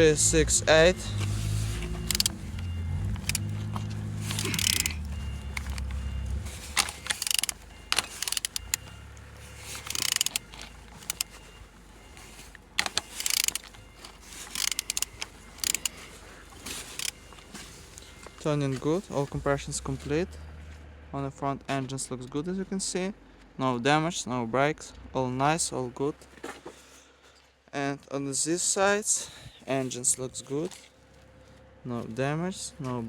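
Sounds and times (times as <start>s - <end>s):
engine turned over by hand: 0.0s - 20.8s
low engine-like hum: 0.0s - 33.0s.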